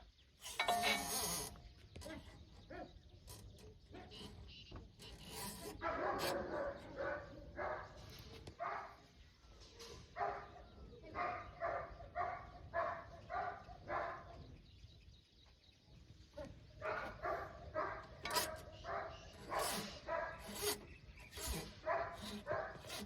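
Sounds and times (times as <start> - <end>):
dog barking: 5.8 - 9.0, 10.1 - 14.4, 16.4 - 20.7, 21.8 - 23.0.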